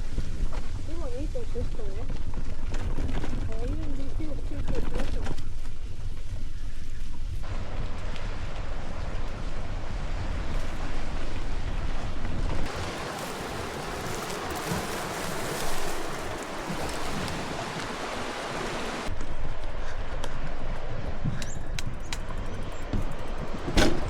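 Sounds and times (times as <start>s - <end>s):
wind buffeting microphone: 0.0s - 24.0s
surf rushing: 7.5s - 19.1s.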